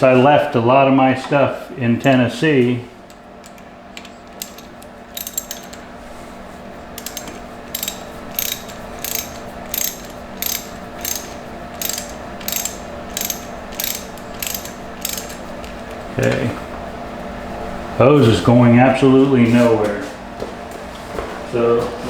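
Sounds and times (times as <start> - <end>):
steady low hum: 0.0 - 22.0
ratchet wrench clicking: 3.1 - 5.9, 7.0 - 16.0.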